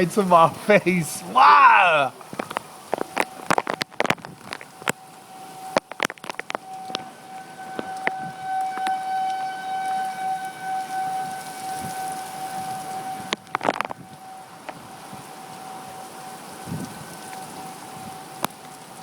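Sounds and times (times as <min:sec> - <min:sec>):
warning siren wailing: 0:01.2 - 0:19.0.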